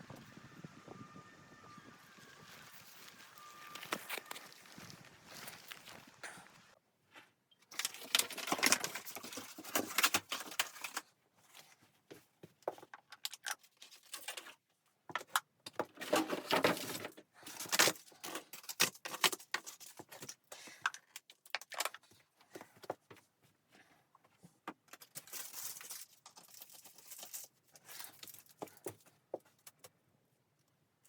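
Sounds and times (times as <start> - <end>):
rustling and scraping: 1.8 - 13.0.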